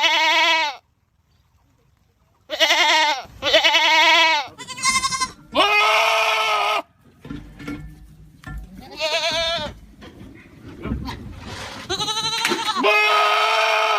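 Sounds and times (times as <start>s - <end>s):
goats screaming: 2.5s - 6.9s, 11.8s - 13.9s.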